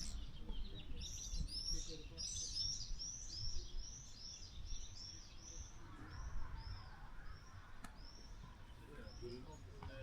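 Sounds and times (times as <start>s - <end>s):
small bird chirping: 0.0s - 5.1s.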